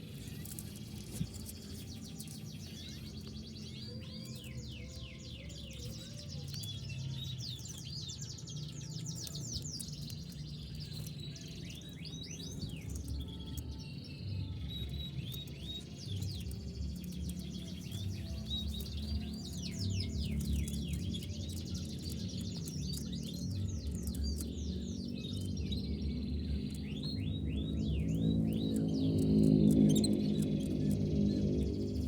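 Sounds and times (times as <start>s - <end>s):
canary singing trills: 0.0s - 32.0s.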